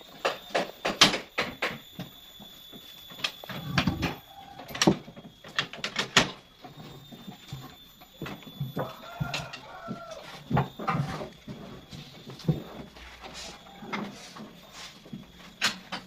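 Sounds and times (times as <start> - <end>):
sharp knocks and clatters: 0.1 - 2.1.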